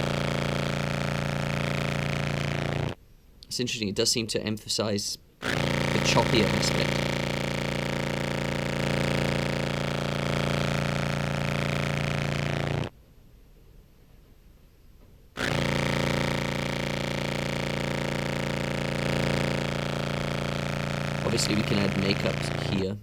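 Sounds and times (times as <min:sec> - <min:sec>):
fuzzed contrabass clarinet note: 0:00.0 - 0:03.0, 0:05.4 - 0:12.9, 0:15.4 - 0:22.9.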